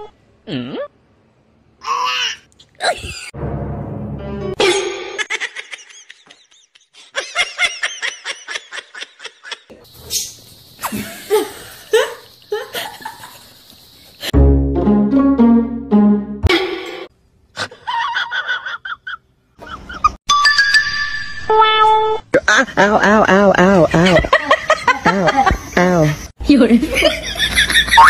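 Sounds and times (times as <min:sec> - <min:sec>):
laughter bursts: 0:04.6 - 0:09.7, 0:10.8 - 0:13.5, 0:23.6 - 0:25.8, 0:27.0 - 0:28.0.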